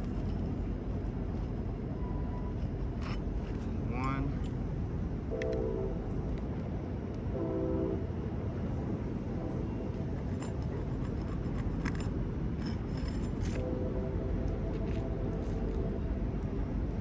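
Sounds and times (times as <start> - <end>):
tool clicking and scraping shingle: 10.2 - 13.6.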